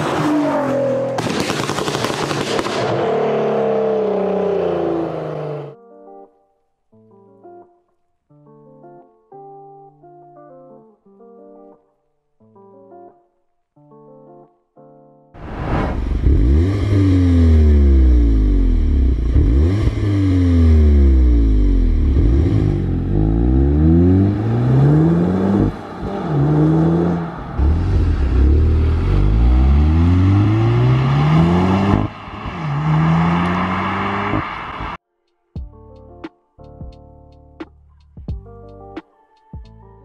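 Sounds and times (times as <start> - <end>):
car engine revving and accelerating: 0.0 - 5.8, 15.4 - 35.0.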